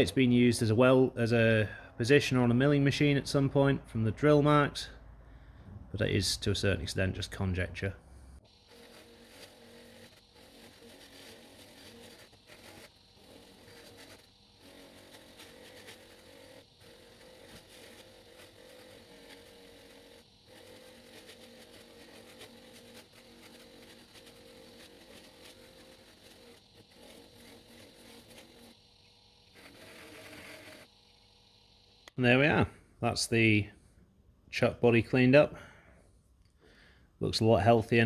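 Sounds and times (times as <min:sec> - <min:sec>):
bench grinder humming: 0:08.4 - 0:32.1.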